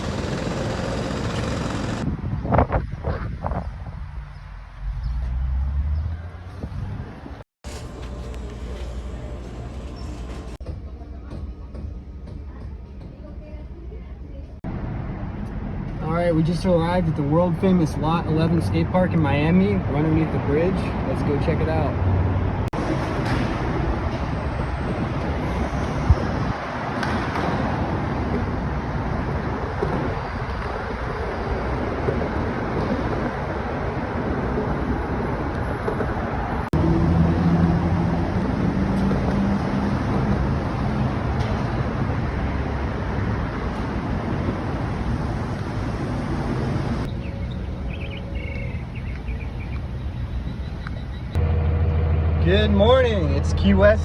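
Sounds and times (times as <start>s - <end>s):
road traffic noise: 0.0s - 54.0s
low steady engine hum: 36.8s - 54.0s.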